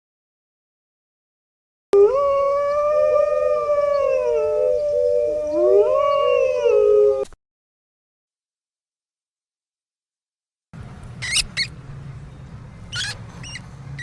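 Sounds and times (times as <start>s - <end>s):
dogs howling: 2.0s - 7.3s.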